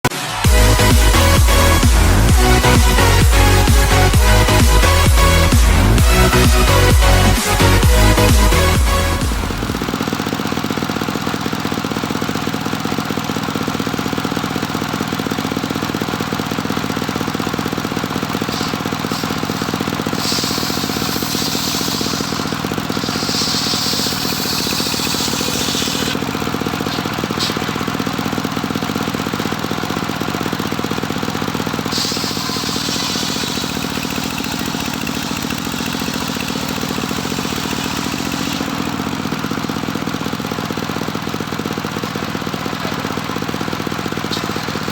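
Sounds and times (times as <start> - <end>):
sawmill engine running: 0.0 - 44.9
saw blade hissing: 18.0 - 28.4, 31.7 - 38.9, 44.2 - 44.9.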